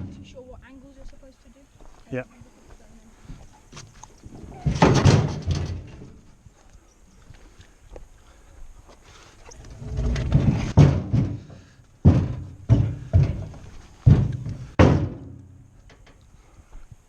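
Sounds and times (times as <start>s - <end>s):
heavy timber thuds: 0.0s - 0.6s, 3.2s - 6.4s, 9.5s - 16.0s
scraping: 3.6s - 6.4s, 9.0s - 16.2s.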